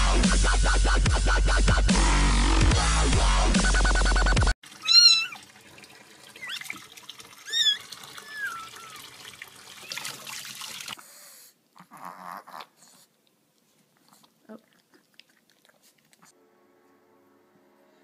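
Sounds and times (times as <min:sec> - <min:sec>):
electronic dance music: 0:00.0 - 0:04.5
cat meowing: 0:04.8 - 0:05.4, 0:07.5 - 0:09.0
running water hiss: 0:04.8 - 0:11.0.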